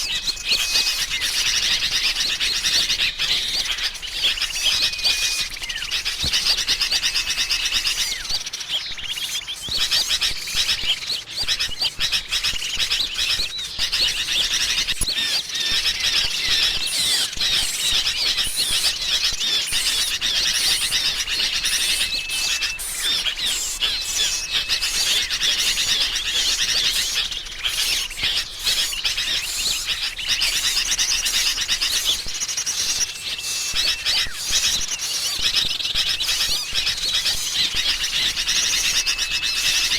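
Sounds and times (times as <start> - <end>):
bird whistle: 0.0 - 39.9
songbirds chirping and trilling: 0.0 - 39.9.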